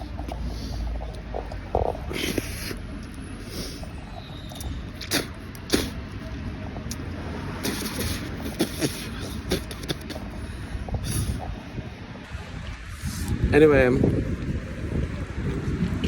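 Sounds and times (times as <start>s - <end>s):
wet mouth clicks chewing: 0.0s - 11.6s
steady low rumble: 0.0s - 16.0s.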